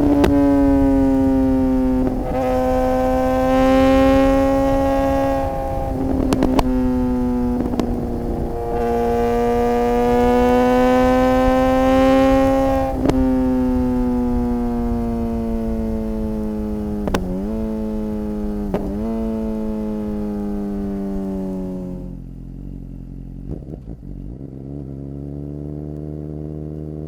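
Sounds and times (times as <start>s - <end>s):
motorcycle engine at high revs: 0.0s - 27.0s.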